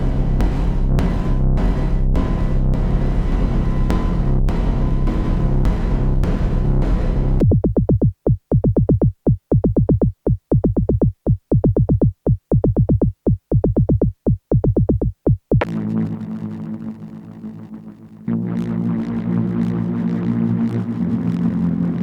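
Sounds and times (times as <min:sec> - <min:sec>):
buzzy synthesizer drone: 0:00.0 - 0:07.5, 0:15.6 - 0:22.0
synthesizer plucked bass notes: 0:00.0 - 0:07.8, 0:15.6 - 0:22.0.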